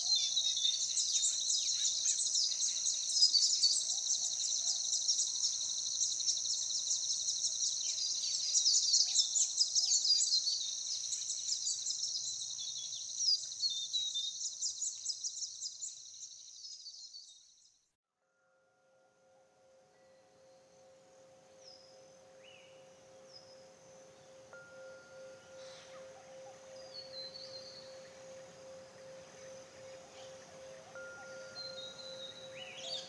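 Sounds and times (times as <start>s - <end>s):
songbirds chirping: 0.0s - 17.7s.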